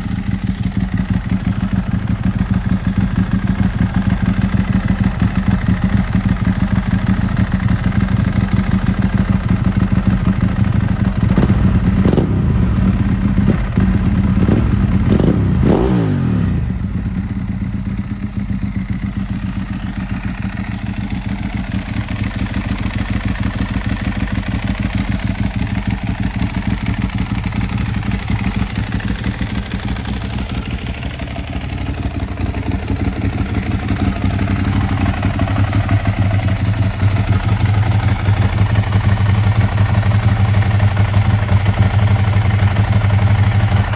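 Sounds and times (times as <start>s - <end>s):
motorcycle engine idling and revving: 0.0s - 43.9s.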